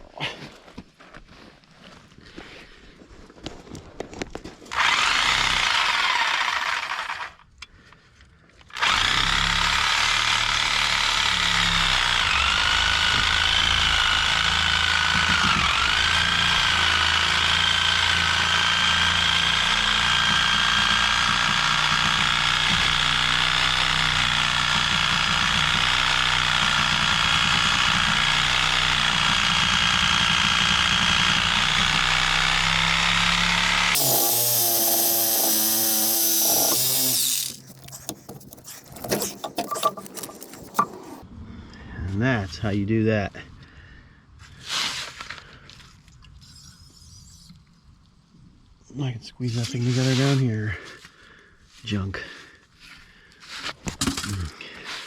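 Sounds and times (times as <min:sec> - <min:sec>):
power tool whining under load: 0:04.7 - 0:07.5, 0:08.7 - 0:41.2.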